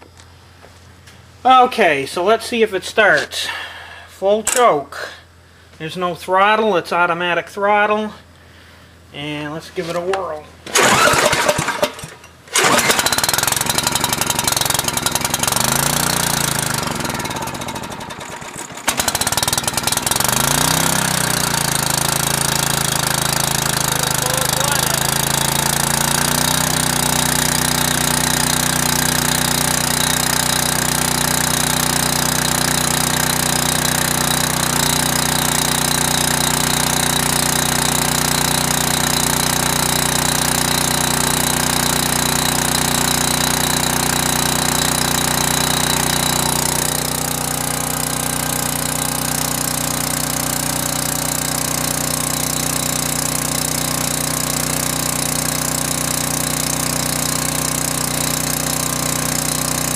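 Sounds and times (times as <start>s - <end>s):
generator engine running: 7.9s - 59.9s.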